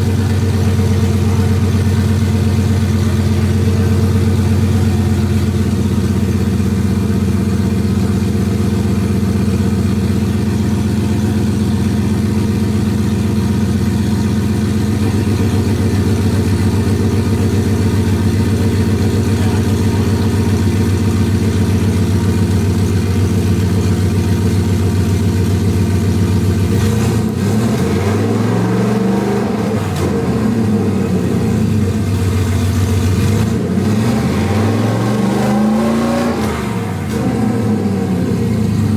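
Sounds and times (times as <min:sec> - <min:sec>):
car engine idling: 0:00.0 - 0:38.9
engine revving in short blips: 0:32.8 - 0:38.9.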